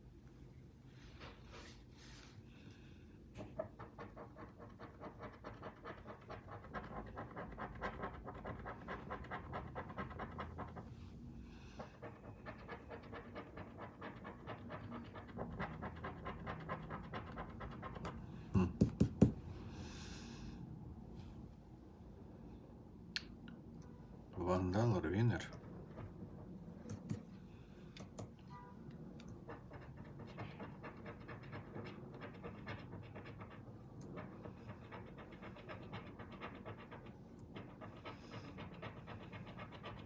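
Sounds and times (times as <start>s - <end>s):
lottery ticket being scratched: 4.0s - 10.9s, 29.3s - 40.0s.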